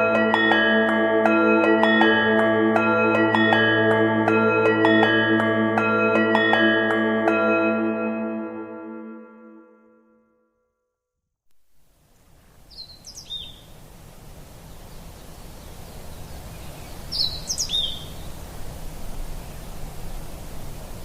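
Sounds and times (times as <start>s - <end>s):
bird chirping: 12.4s - 21.0s.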